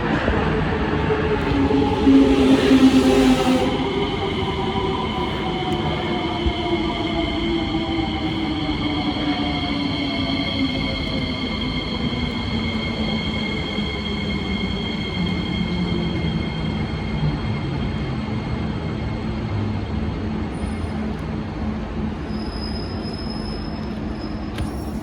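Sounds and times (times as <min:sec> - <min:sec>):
train wheel and running noise: 0:00.0 - 0:25.0
low hum dropping in pitch: 0:01.1 - 0:08.5.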